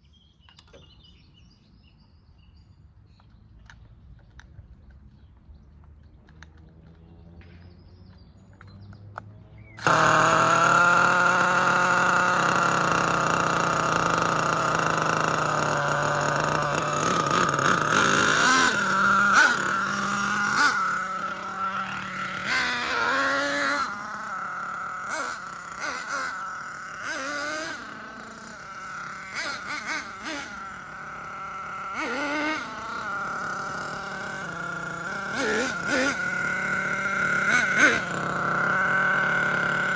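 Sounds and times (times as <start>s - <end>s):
rc truck two-stroke engine revving: 5.8s - 39.9s.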